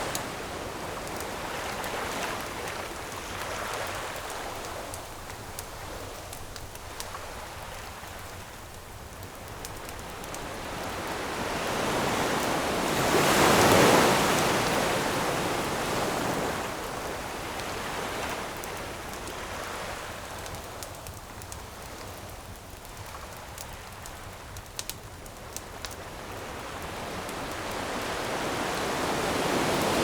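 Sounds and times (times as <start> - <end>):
campfire crackling: 0.0 - 30.0
ocean wave breaking on shore: 10.4 - 16.9, 26.9 - 30.0.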